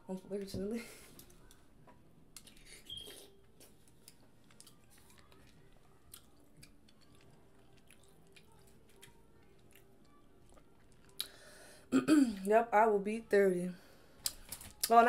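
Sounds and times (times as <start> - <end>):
person chewing: 2.4 - 11.4.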